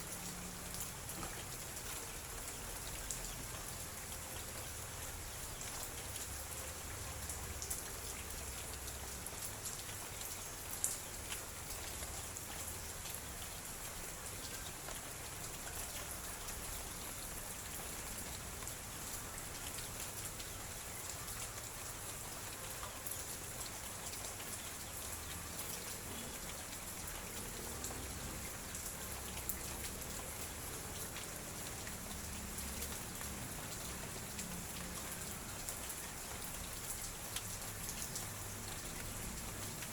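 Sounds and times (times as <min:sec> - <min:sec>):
light drizzle falling: 0:00.0 - 0:39.9.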